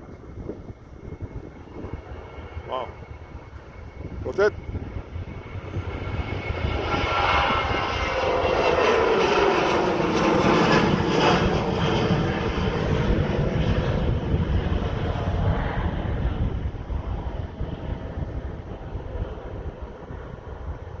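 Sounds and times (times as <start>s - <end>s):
jet engines at takeoff: 0.0s - 21.0s.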